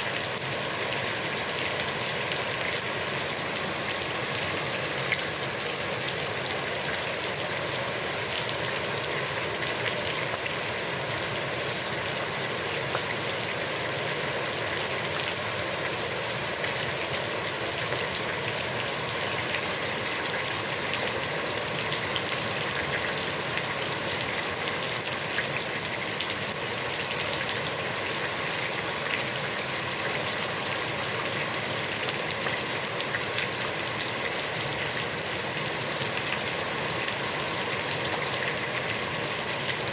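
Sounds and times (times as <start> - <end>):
heavy rain on a pond: 0.0 - 39.9.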